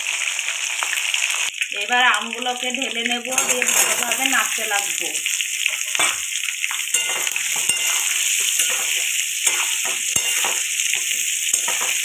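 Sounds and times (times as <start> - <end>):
food sizzling in hot oil: 0.0 - 12.0
spatula scraping a pan: 3.4 - 4.4, 5.6 - 12.0.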